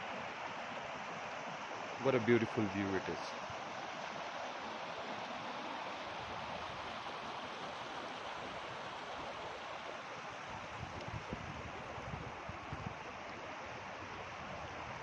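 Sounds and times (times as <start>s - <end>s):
flowing water rushing: 0.0s - 15.0s
wind on microphone: 10.5s - 15.0s.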